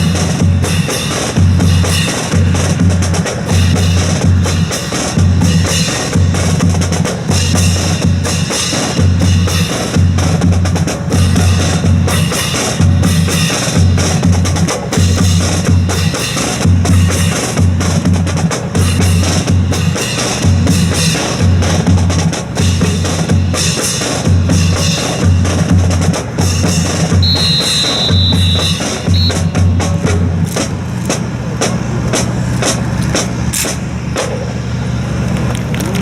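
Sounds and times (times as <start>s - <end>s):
bass drum beat: 0.0s - 30.6s
high steady tone: 27.2s - 30.1s
snare drum hits: 27.2s - 30.6s.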